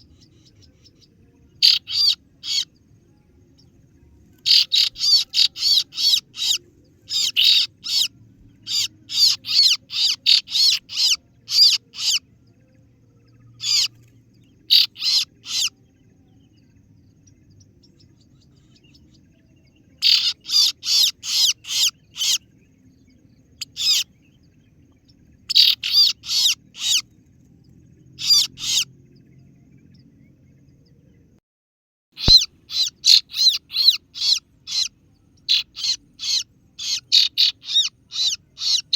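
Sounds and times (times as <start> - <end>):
bird lure call chirps: 1.6 - 2.7, 4.4 - 12.2, 13.6 - 13.9, 14.7 - 15.7, 20.0 - 22.4, 25.5 - 27.0, 28.2 - 28.9, 32.2 - 38.9.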